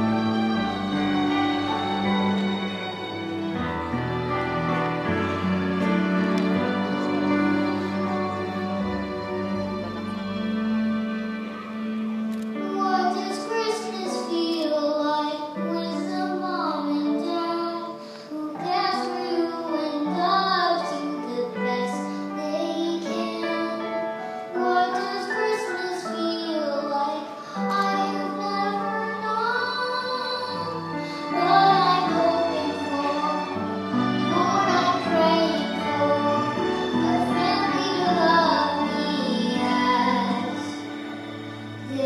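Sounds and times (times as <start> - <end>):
sustained instrumental accompaniment: 0.0 - 14.6, 27.4 - 42.0
child singing long held notes: 12.6 - 33.6, 34.3 - 40.8.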